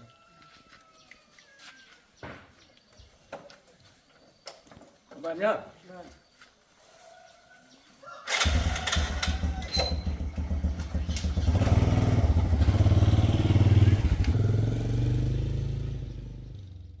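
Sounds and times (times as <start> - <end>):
motorcycle engine revving: 8.3 - 17.0.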